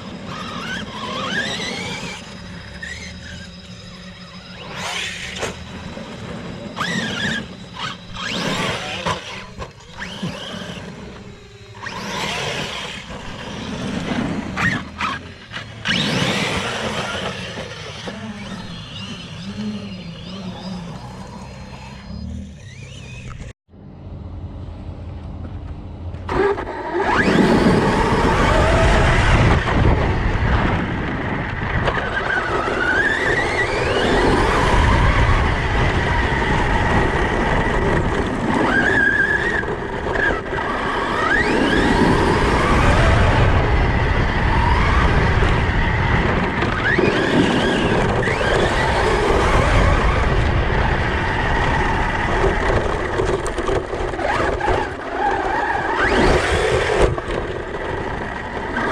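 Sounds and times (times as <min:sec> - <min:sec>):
tyres on gravel: 0:00.0 - 0:23.5, 0:25.4 - 0:58.9
electric motor whining: 0:00.0 - 0:23.6, 0:26.1 - 0:58.9
wind noise: 0:26.3 - 0:58.9.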